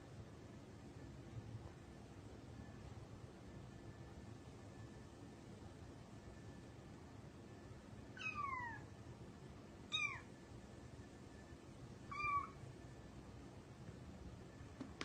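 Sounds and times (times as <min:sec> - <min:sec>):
cat meowing: 0:08.2 - 0:08.8, 0:09.9 - 0:10.3, 0:12.1 - 0:12.6.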